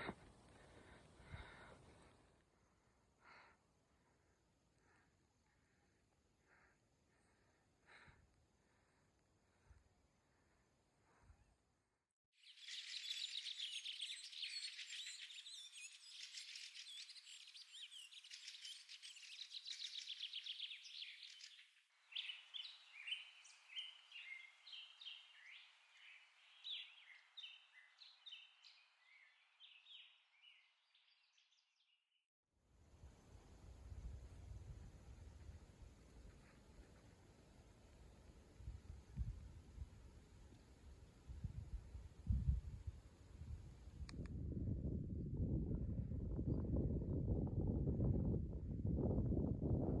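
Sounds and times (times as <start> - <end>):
birds chirping and singing: 12.6 - 21.6.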